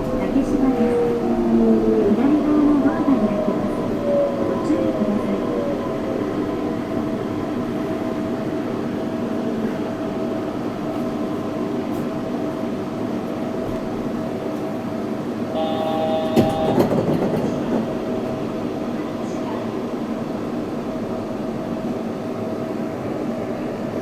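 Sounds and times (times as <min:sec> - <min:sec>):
train running hum: 0:00.0 - 0:24.0
higher motor tones: 0:15.6 - 0:16.9.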